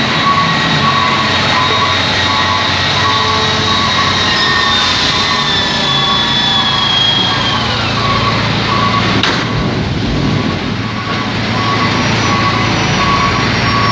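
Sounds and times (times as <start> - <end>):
diesel engine running: 0.0 - 13.9
backup alarm beeping: 0.1 - 13.9.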